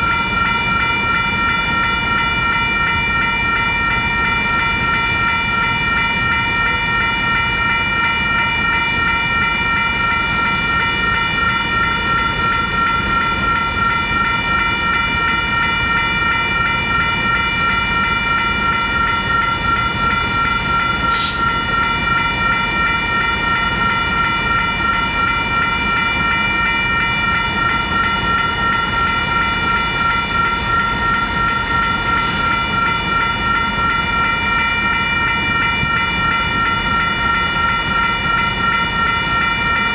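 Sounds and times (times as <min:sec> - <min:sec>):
train rolling past: 0:00.0 - 0:39.9.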